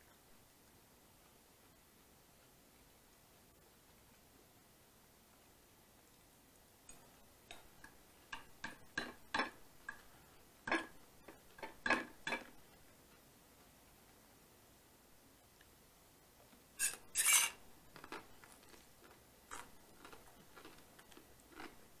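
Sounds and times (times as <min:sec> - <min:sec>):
crunchy chewing: 0:16.8 - 0:22.0.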